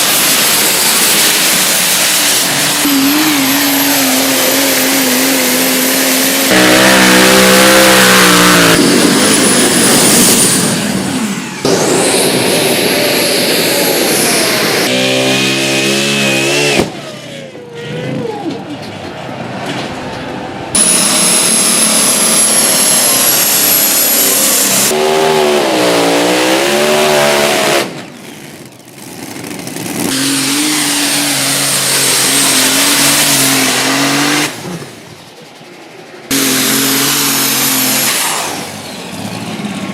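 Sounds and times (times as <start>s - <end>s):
tractor engines revving hard: 0.0s - 39.9s
high whistle: 20.8s - 24.5s.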